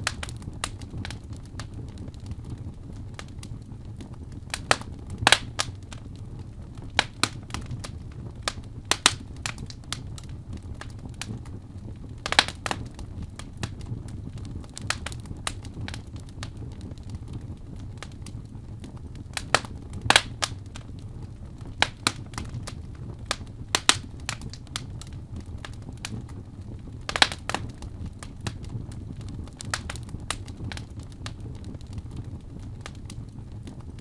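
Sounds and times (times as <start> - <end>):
fire crackling and popping: 0.0 - 34.0
low fire rumble: 0.0 - 34.0.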